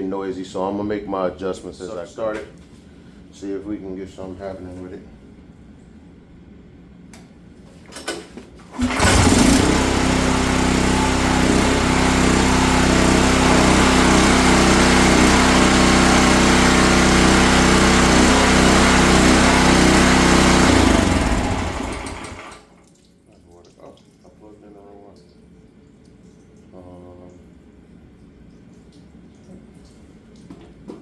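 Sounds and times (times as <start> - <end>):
pressure washer engine running: 8.8 - 22.7.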